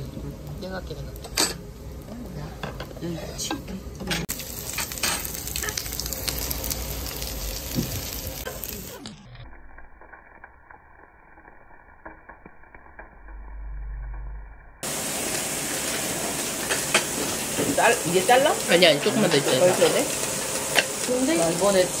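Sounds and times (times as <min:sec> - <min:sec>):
meat sizzling on a grill: 0:00.0 - 0:13.6, 0:14.8 - 0:22.0
low hum: 0:04.3 - 0:14.9.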